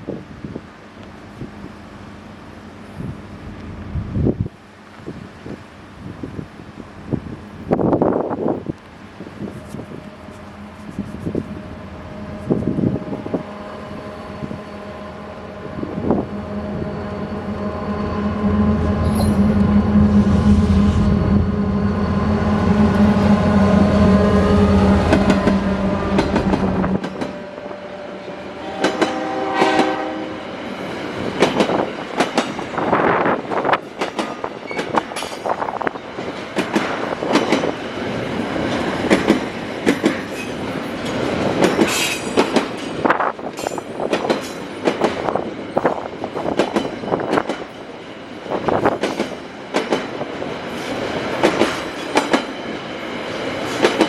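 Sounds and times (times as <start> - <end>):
diesel locomotive engine drone: 0.0 - 54.0.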